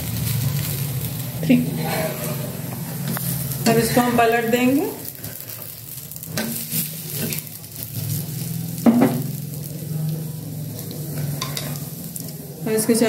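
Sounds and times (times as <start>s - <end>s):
food sizzling in oil: 0.0s - 13.0s
spatula scraping griddle: 1.5s - 9.4s, 10.8s - 12.3s.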